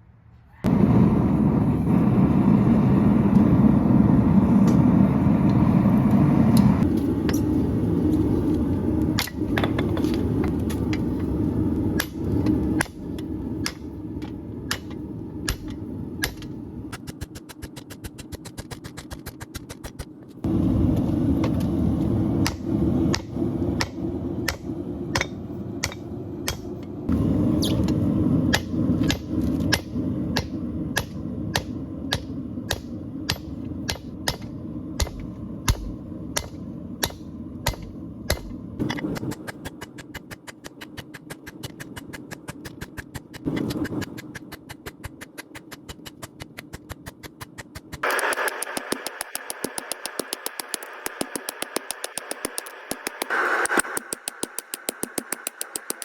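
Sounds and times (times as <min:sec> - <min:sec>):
hammer striking steel: 0:14.7 - 0:20.0, 0:22.4 - 0:26.9, 0:28.5 - 0:56.0
rapid small clicks: 0:39.1 - 0:56.0.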